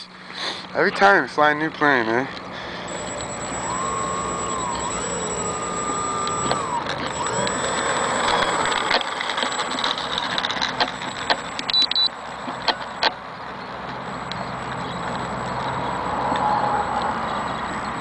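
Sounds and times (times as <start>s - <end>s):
electric motors and propellers whining: 2.8s - 13.1s, 14.0s - 18.0s
sharp clicks: 2.9s - 13.2s.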